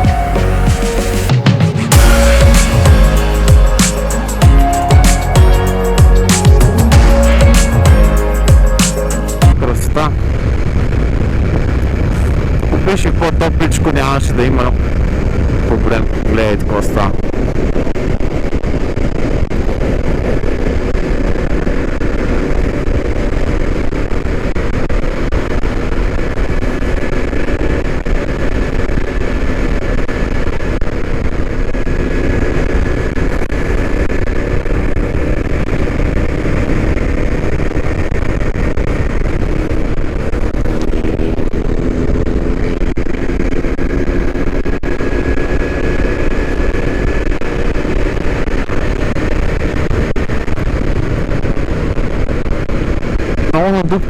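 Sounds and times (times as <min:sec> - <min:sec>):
wind and road rumble: 0:09.5 - 0:53.7
motorcycle engine running: 0:35.8 - 0:48.7.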